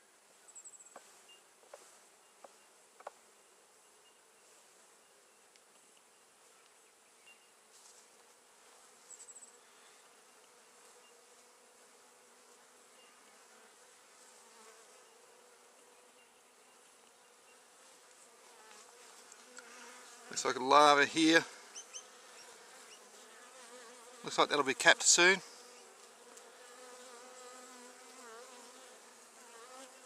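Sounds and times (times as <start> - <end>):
honey bees buzzing: 8.4 - 30.0.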